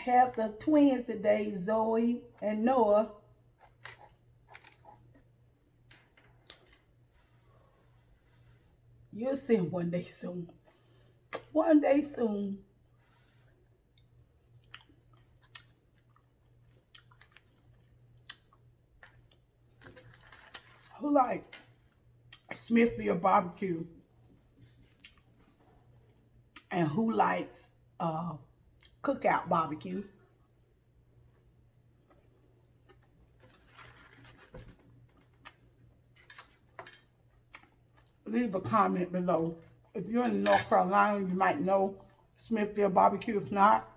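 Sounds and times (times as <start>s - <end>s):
low steady hum: 0.0s - 43.9s
person chewing food: 13.7s - 20.9s, 24.7s - 25.6s.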